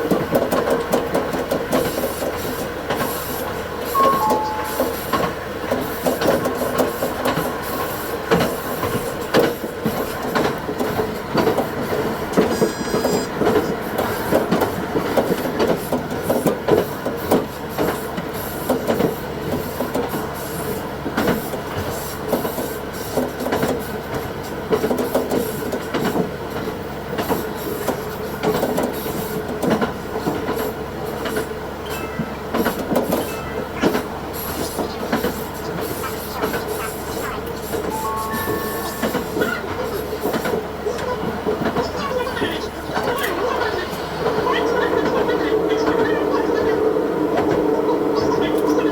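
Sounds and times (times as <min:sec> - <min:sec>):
railcar running tone: 0:00.0 - 0:48.9
brief higher tone: 0:04.0 - 0:05.4, 0:37.9 - 0:39.7.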